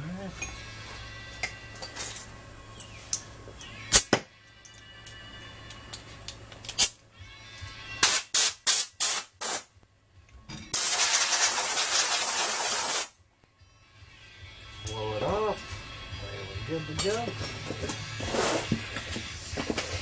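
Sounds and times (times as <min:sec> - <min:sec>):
aerosol can spraying: 0:08.0 - 0:09.7, 0:10.8 - 0:13.1.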